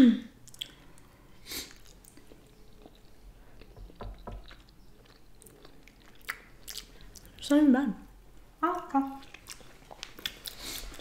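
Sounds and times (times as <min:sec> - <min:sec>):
wet chewing mouth sounds: 0:00.4 - 0:07.4, 0:09.2 - 0:11.0.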